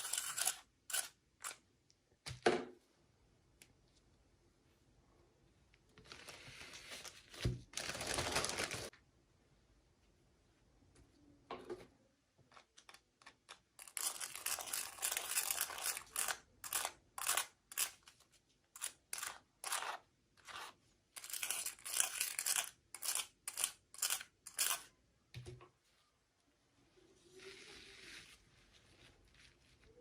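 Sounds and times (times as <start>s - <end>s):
packaging rustling: 6.1s - 8.9s
packaging crinkling and tearing: 7.0s - 8.9s.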